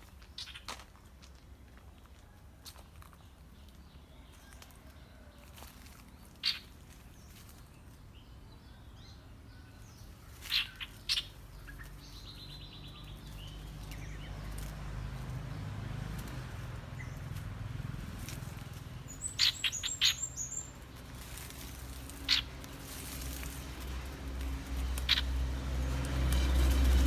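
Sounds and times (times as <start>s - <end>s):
bird chirping: 0.3s - 0.7s, 6.2s - 15.6s, 18.9s - 22.8s, 24.6s - 27.0s
bird rattling trill: 19.1s - 27.0s.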